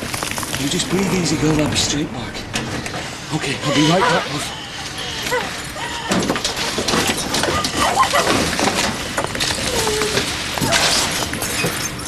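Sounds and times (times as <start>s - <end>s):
steady background noise: 0.0s - 12.0s
indistinct voices: 3.2s - 8.4s
clattering and knocking: 6.1s - 12.0s.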